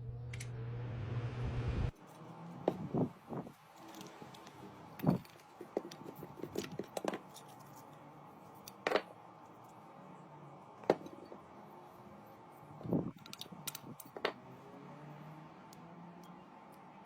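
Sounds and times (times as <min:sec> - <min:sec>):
electric fan humming: 0:00.0 - 0:05.2.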